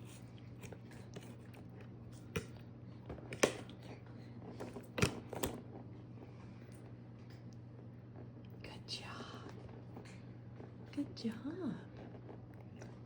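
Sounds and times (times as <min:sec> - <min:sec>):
baby eating smacks and clicks: 0:00.0 - 0:05.7, 0:12.4 - 0:13.0
faint steady hum: 0:00.0 - 0:13.0.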